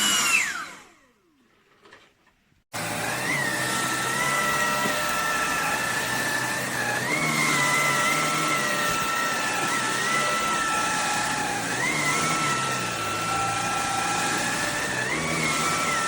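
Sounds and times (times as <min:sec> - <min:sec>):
vacuum cleaner motor whine: 0:00.0 - 0:02.1, 0:02.7 - 0:16.0.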